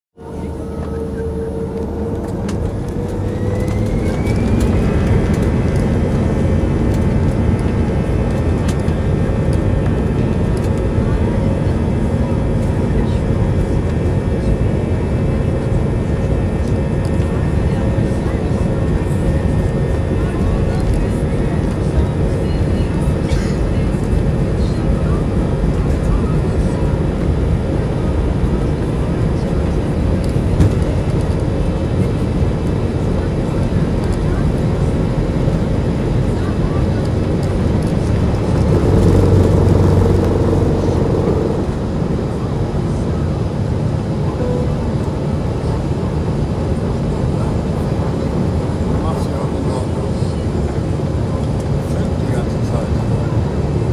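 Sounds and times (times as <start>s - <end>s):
jet engines running: 0.2s - 53.9s
jet engines spooling up: 0.7s - 9.1s, 36.4s - 42.8s.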